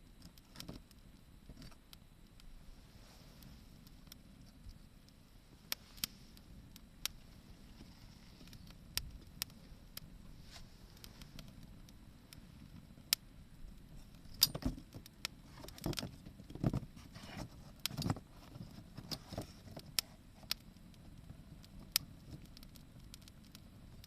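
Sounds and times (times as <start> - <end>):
wood fire crackling: 0.0 - 24.0
knocks and rustles: 14.3 - 20.0.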